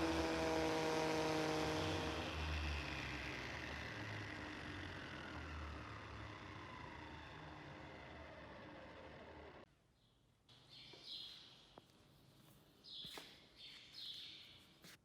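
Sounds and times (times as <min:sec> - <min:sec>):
power tool motor winding down: 0:00.0 - 0:09.7.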